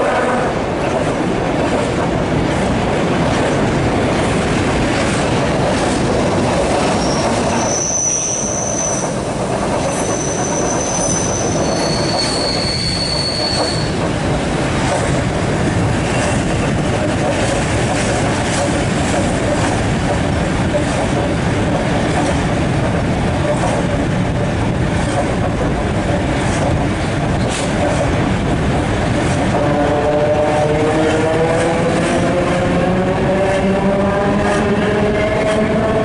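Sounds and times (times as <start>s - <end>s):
train rumbling on rails: 0.0s - 36.0s
high-pitched wheel squeals: 6.9s - 9.2s, 9.8s - 14.0s.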